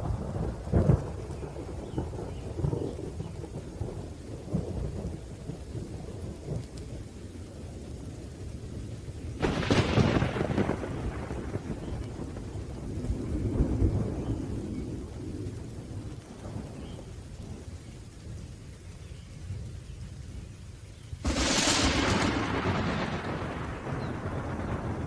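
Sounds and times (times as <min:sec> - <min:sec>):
rolling thunder: 0:00.0 - 0:06.9, 0:09.2 - 0:18.4, 0:21.2 - 0:25.0
steady rain: 0:00.0 - 0:25.0
sharp thunderclap: 0:09.4 - 0:16.7, 0:21.2 - 0:25.0.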